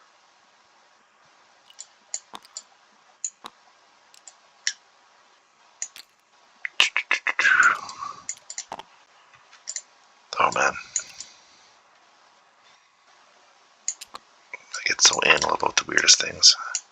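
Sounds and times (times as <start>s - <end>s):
game pieces clicking: 1.7s - 2.6s, 5.8s - 6.2s, 7.6s - 8.8s, 13.9s - 14.2s.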